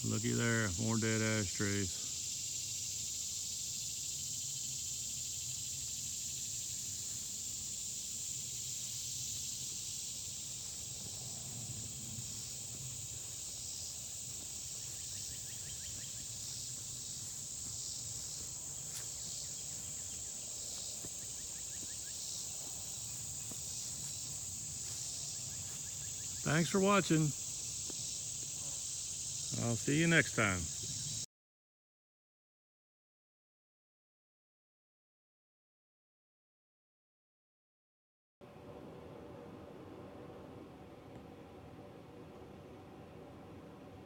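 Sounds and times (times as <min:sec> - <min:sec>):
insects trilling: 0:00.0 - 0:31.3.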